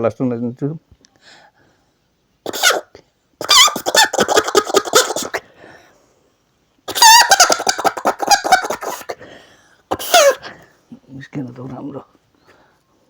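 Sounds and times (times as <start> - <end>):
leaf whistle imitating hen cackle: 2.5 - 5.4, 6.9 - 9.2
man speaking: 10.9 - 12.1.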